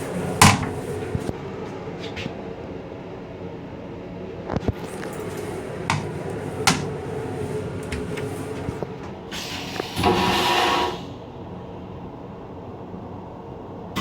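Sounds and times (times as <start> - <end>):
railcar rumble: 0.0 - 2.2, 4.8 - 12.9.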